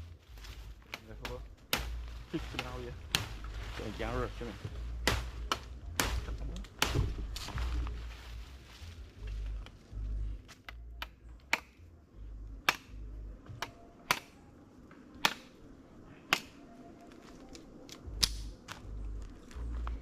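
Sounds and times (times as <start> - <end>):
low rumble: 1.4 - 13.5
sharp clicks of hand work: 10.6 - 11.8, 13.6 - 14.4.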